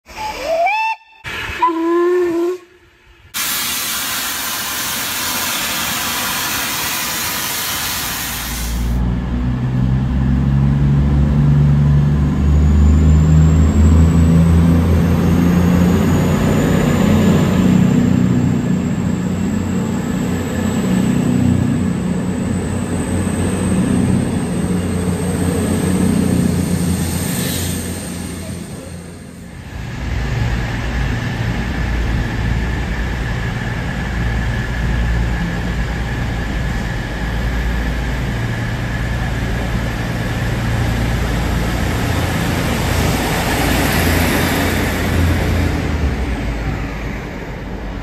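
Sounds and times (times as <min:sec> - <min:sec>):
diesel train engines: 0:00.0 - 0:48.0
steam locomotive whistle toots: 0:00.1 - 0:08.9
loud hiss of steam: 0:01.2 - 0:02.0, 0:03.3 - 0:09.0.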